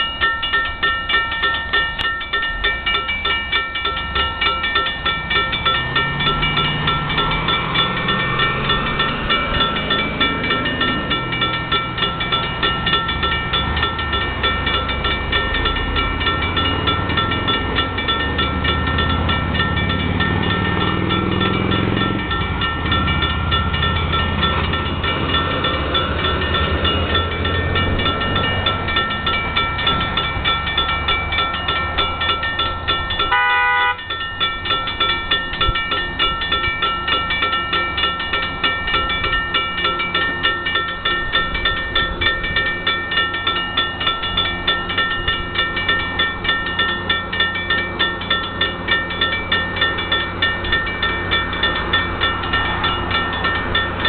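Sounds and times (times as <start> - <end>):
diesel train engine rumbling: 0.0 - 54.0
locomotive bell ringing: 0.0 - 54.0
train horn: 33.3 - 34.1.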